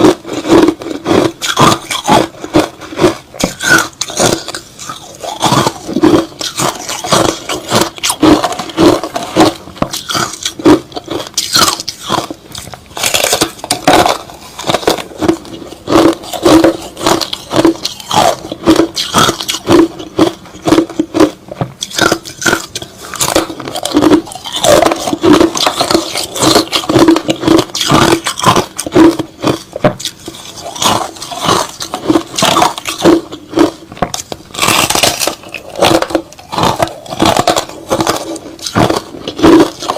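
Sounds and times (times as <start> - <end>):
chewing crushed ice: 0.0 - 39.9.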